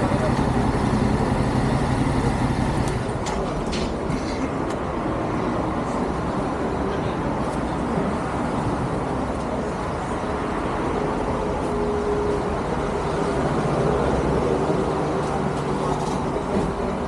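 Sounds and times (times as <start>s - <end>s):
motorcycle engine drone: 0.0s - 3.2s.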